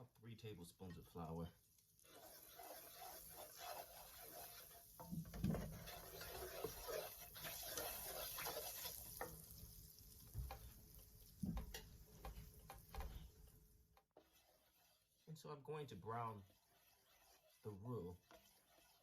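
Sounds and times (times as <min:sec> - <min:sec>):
light sizzling: 0:01.0 - 0:19.0
utensil scraping pan: 0:02.0 - 0:09.4, 0:14.2 - 0:15.2, 0:15.8 - 0:19.0.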